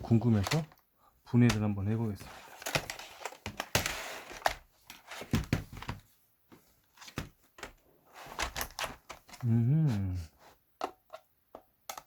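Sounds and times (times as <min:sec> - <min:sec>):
plastic keyboard clicks and knocks: 0:01.4 - 0:01.7, 0:10.8 - 0:12.0.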